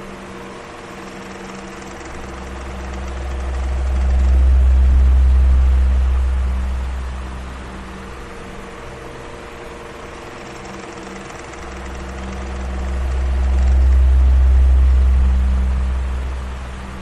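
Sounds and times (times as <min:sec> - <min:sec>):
electric fan running: 0:00.0 - 0:17.0
deep rumble: 0:02.0 - 0:08.7, 0:11.6 - 0:17.0.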